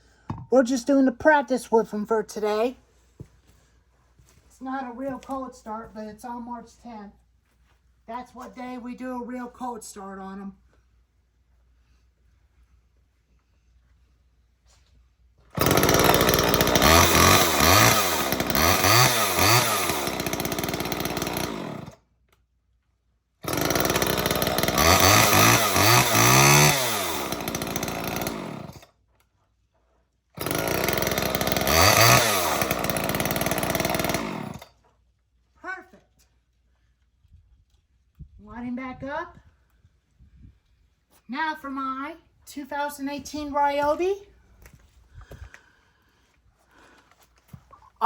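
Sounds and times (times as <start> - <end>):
chainsaw revving: 15.6 - 22.0, 23.4 - 28.9, 30.4 - 34.7.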